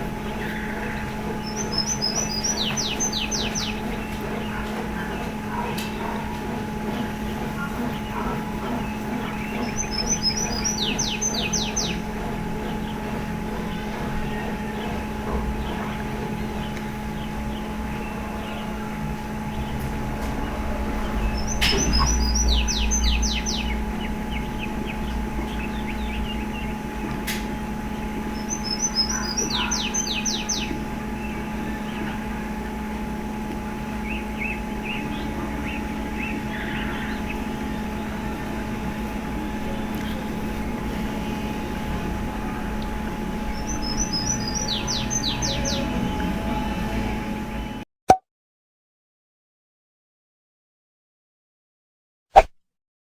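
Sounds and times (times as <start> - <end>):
songbird singing: 0.0 - 47.8
steady low hum: 0.0 - 47.8.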